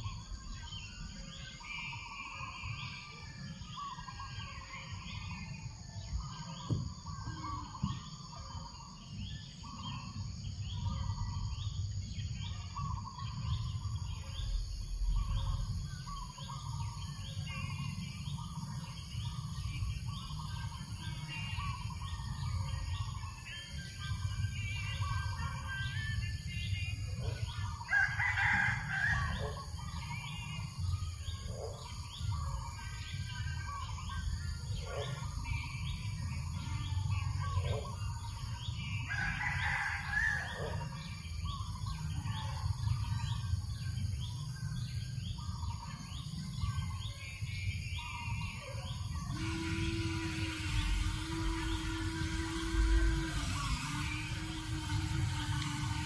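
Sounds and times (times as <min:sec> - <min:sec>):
small birds chirping: 0:00.0 - 0:56.0
rooster crowing: 0:27.3 - 0:29.8, 0:39.0 - 0:41.1, 0:48.9 - 0:56.0
steady low hum: 0:40.8 - 0:56.0.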